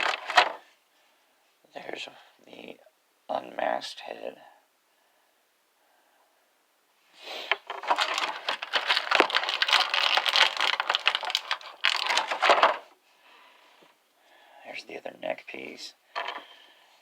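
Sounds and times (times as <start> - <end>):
plastic packaging crinkling: 0.0 - 0.6, 7.5 - 12.9.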